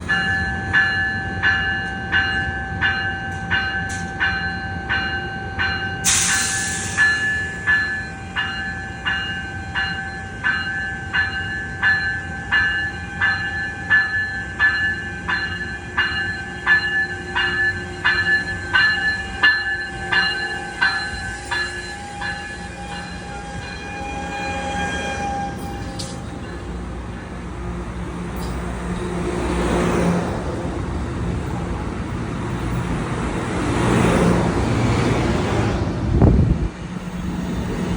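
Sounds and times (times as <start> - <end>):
railroad crossing bell ringing: 0.0 - 29.3, 30.3 - 33.6
train rumble: 0.0 - 37.9
loud hiss: 6.0 - 7.4.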